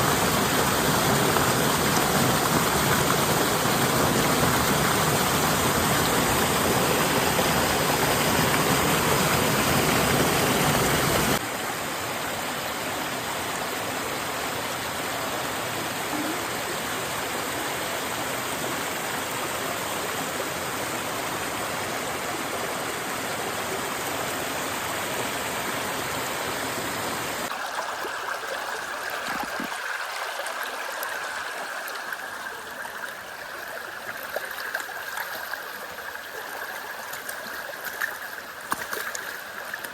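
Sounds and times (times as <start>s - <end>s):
water rushing: 0.0s - 12.8s, 24.6s - 39.9s.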